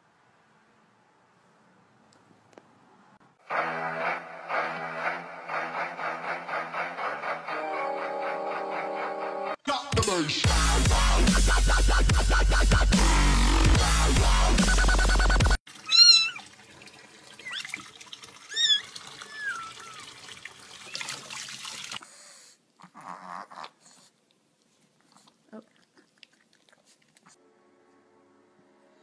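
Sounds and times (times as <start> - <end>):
dubstep music: 3.5 - 15.6
cat meowing: 15.8 - 16.4, 18.5 - 20.1.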